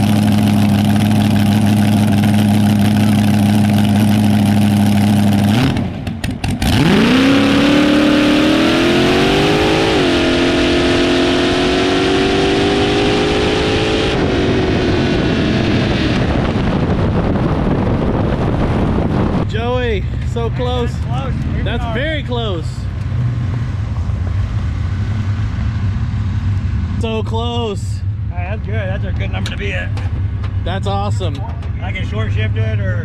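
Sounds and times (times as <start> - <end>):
dragster engine revving: 0.0 - 19.5.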